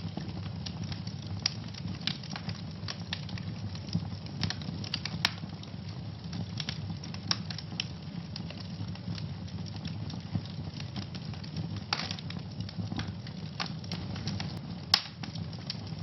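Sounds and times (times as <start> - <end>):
low rumble of flames: 0.0 - 16.0
wood fire crackling and popping: 0.0 - 16.0.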